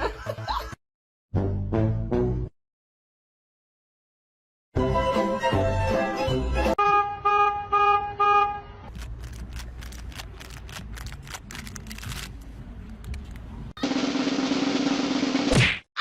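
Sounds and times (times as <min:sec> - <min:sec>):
horn honking: 0:06.8 - 0:08.9
rustling: 0:08.9 - 0:13.5.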